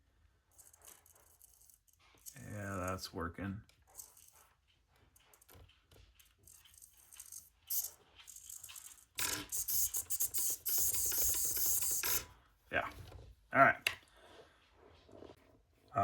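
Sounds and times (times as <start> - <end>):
servo motor rattly buzz: 6.6 - 12.3.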